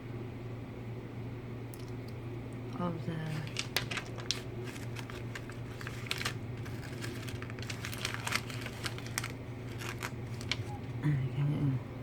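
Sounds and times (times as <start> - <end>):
steady low hum: 0.0 - 12.0
plastic clicks and crinkles: 3.2 - 10.9.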